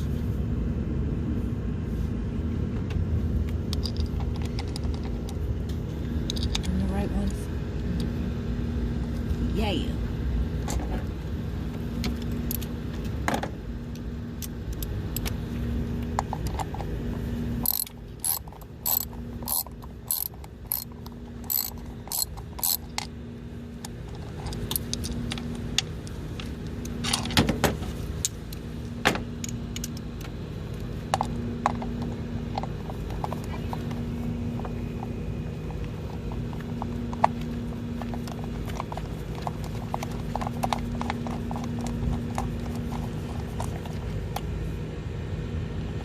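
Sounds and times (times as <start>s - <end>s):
ratchet wrench clicking: 17.6s - 23.1s.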